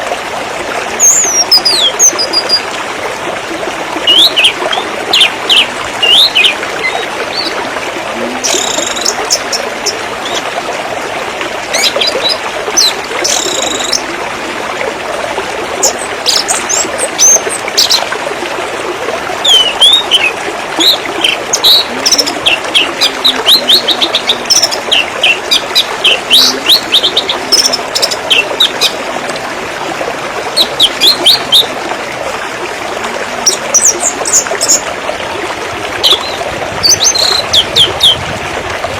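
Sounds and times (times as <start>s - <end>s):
running water trickling: 0.0s - 38.9s
birds chirping: 4.0s - 7.6s, 19.4s - 29.0s, 36.0s - 38.2s.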